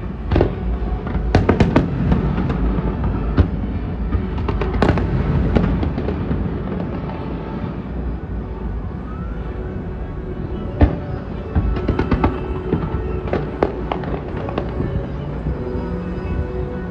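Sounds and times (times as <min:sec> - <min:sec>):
fireworks bang: 0:00.2 - 0:08.1
faint rising whistle: 0:07.6 - 0:16.9.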